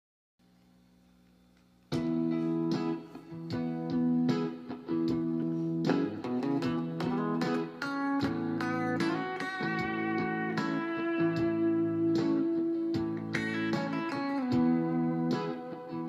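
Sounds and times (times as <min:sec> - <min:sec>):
amplifier hum: 0:00.4 - 0:16.0
electric guitar notes and chords: 0:01.9 - 0:16.0.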